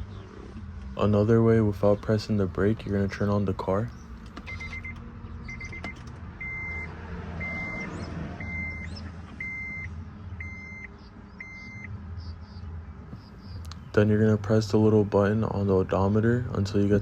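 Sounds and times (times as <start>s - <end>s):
steady low hum: 0.0s - 17.0s
dashboard chirp: 3.1s - 13.9s
dashboard warning beeps: 4.4s - 12.0s.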